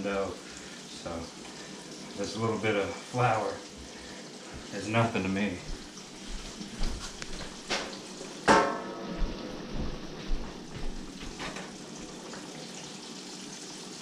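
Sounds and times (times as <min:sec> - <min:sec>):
knocks and clatters in kitchen: 0:05.7 - 0:12.5.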